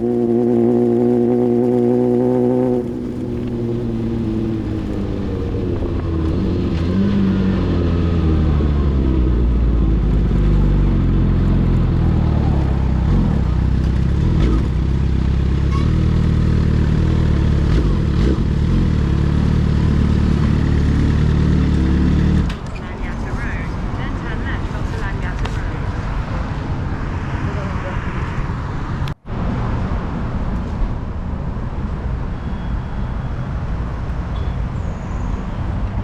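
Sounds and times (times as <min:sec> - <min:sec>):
motorcycle engine rumbling: 0:00.0 - 0:29.2.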